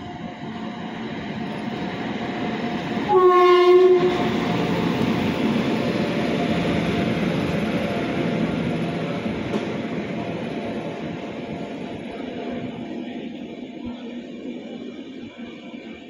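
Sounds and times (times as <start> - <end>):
train rumble: 0.0 - 16.0
train horn blast: 3.1 - 4.6.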